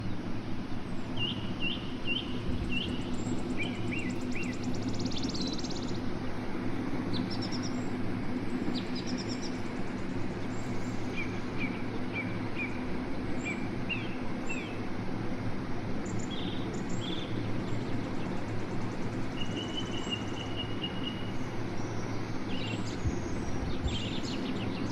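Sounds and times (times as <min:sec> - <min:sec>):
steady low hum: 0:00.0 - 0:24.9
songbird chirping: 0:01.2 - 0:06.0.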